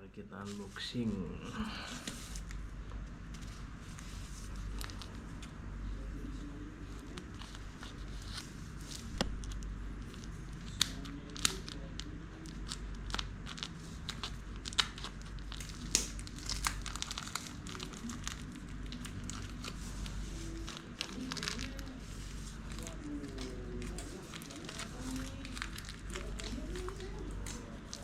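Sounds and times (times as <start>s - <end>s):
packaging tearing and crinkling: 6.9s - 28.0s.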